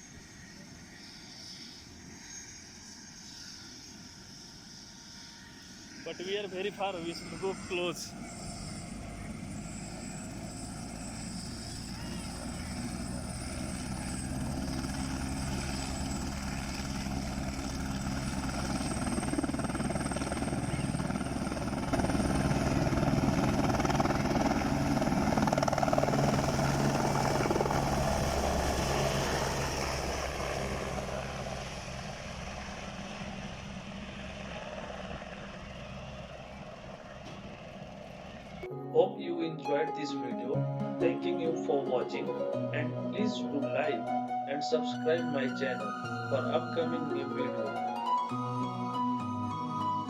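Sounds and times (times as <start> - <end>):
helicopter taking off: 0.0 - 38.7, 41.0 - 50.0
high turbine whine: 0.0 - 38.7.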